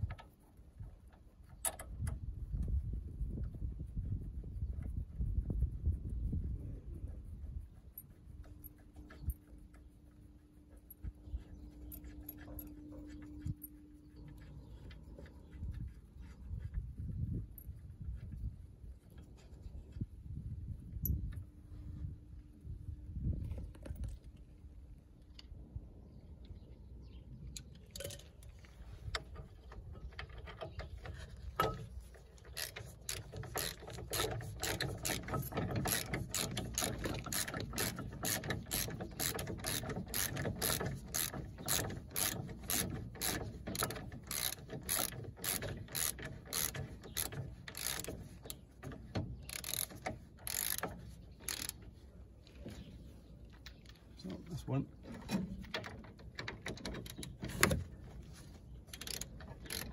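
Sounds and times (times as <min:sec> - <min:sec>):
ratchet wrench clicking: 0:32.5 - 0:48.6, 0:49.5 - 0:51.8, 0:58.9 - 0:59.9.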